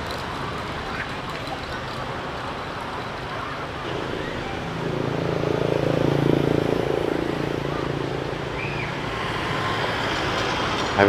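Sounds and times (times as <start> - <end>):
street background noise: 0.0 - 11.0
vehicle engine passing: 2.5 - 11.0.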